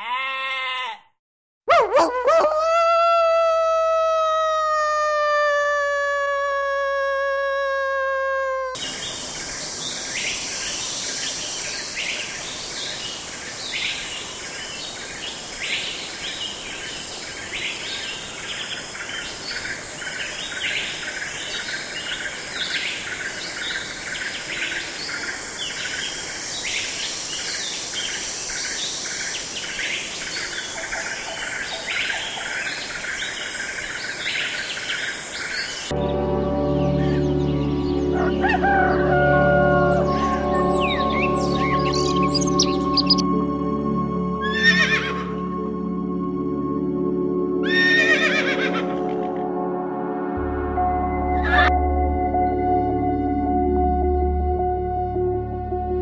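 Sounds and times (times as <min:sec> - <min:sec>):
wolf howling: 0:01.7 - 0:08.8
steady high hiss: 0:08.8 - 0:35.9
birds chirping: 0:08.8 - 0:43.2, 0:47.6 - 0:49.3, 0:51.4 - 0:51.7.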